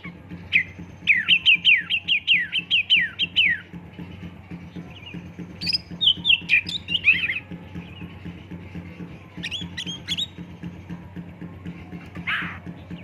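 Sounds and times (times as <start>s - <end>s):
bird singing whistled notes: 0.0s - 3.7s, 4.7s - 10.7s.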